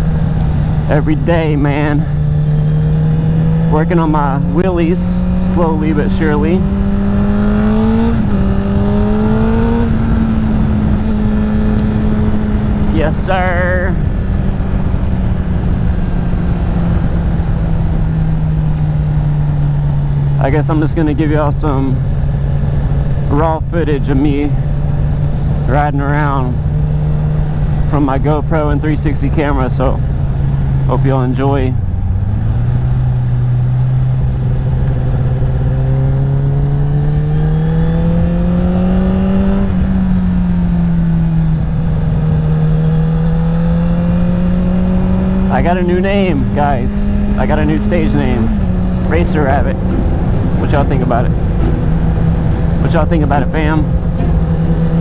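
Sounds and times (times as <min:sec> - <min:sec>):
heavy wind noise: 0:00.0 - 0:55.0
motorcycle engine running: 0:00.0 - 0:55.0.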